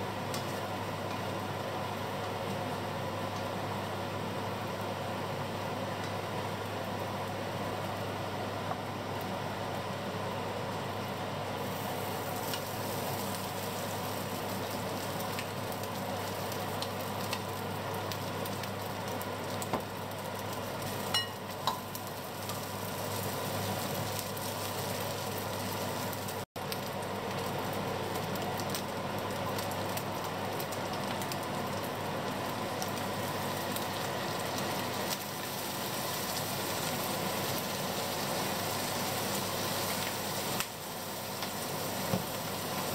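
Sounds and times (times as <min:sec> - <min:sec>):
fish sizzling in oil: 0:11.5 - 0:42.9.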